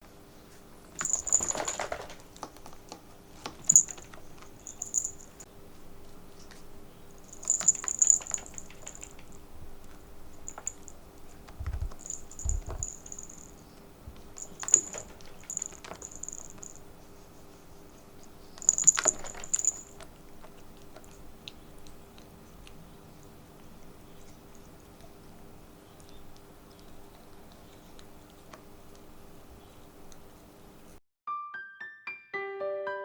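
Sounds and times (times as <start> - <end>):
small high jingles: 0.9 - 2.8, 3.4 - 5.5, 7.1 - 16.9, 18.4 - 21.2
soft low thumps: 11.6 - 13.5.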